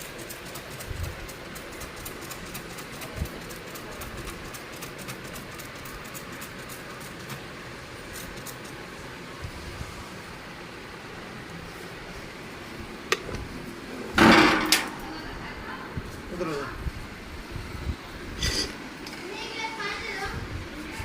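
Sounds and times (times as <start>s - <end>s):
rapid irregular clicking: 0.0s - 8.8s
air conditioner rushing: 0.0s - 21.0s.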